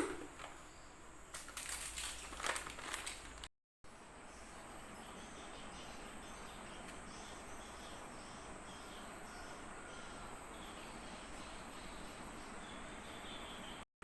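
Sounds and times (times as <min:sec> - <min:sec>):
insects chirping: 0:04.3 - 0:13.8.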